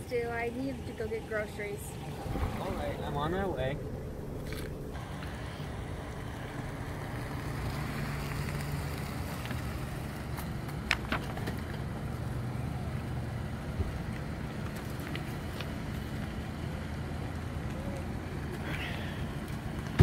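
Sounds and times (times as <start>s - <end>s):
car engine running: 0.0s - 20.0s
wind noise on microphone: 2.0s - 7.7s.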